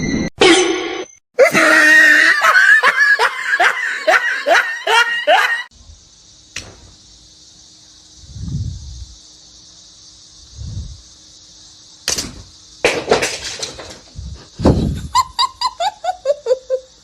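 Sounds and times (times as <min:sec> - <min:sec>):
person laughing hard: 0:01.4 - 0:05.7, 0:14.6 - 0:17.0.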